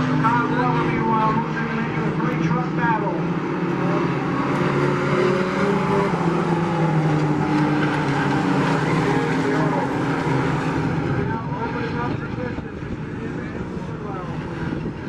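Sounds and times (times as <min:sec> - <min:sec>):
racing truck engines: 0:00.0 - 0:15.0.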